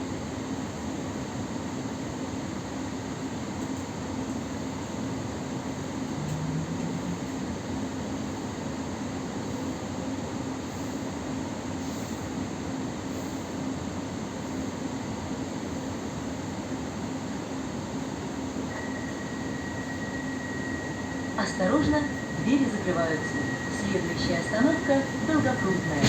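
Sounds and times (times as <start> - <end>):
electric train humming: 5.2 - 8.8, 18.0 - 26.0.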